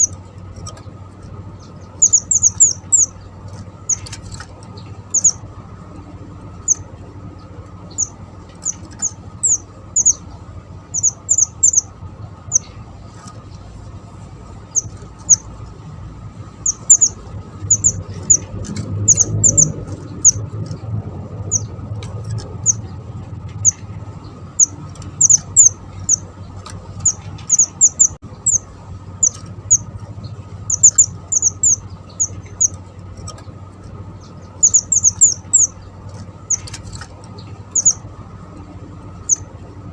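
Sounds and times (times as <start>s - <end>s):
high thin bird chirps: 1.5s - 5.5s, 6.6s - 13.4s, 14.6s - 15.6s, 16.5s - 20.8s, 21.4s - 38.1s.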